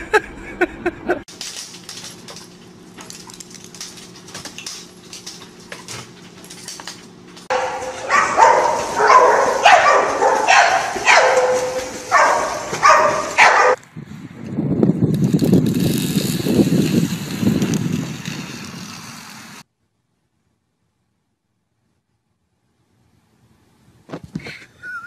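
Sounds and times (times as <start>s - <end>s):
dog barking: 7.5s - 13.8s.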